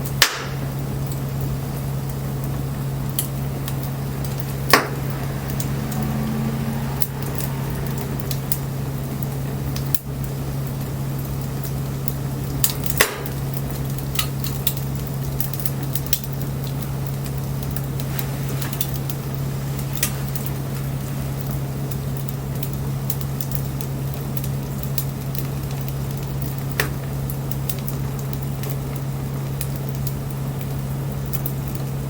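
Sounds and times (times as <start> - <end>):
bonfire hissing and sizzling: 0.0 - 32.0
fire crackling and popping: 0.0 - 32.0
low hum: 0.7 - 11.7.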